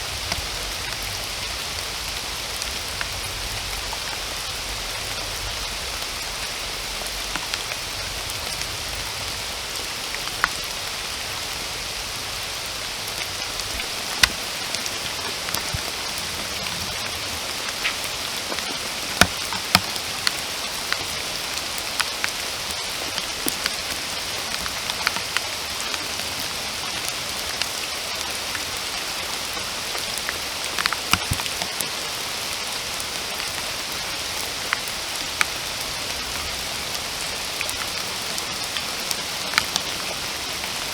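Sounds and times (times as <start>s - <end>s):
close raindrops striking: 0.0s - 40.9s
steady rain hissing: 0.0s - 40.9s.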